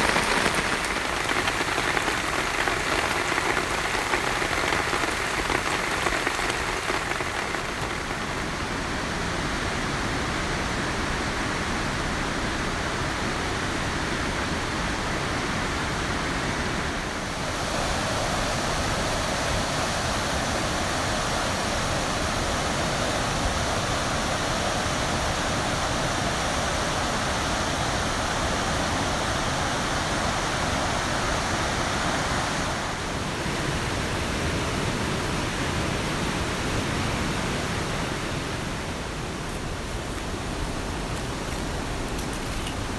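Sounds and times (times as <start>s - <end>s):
heavy rain rushing: 0.0s - 9.8s.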